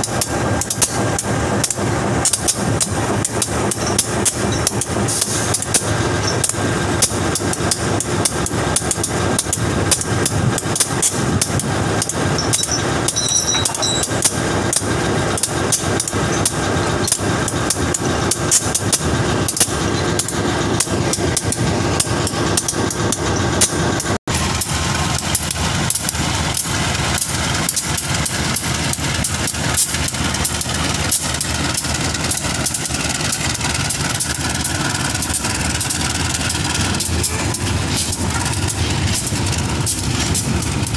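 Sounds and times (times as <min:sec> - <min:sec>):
diesel locomotive engine: 0:00.0 - 0:40.9
railway wagon clattering: 0:00.0 - 0:40.9.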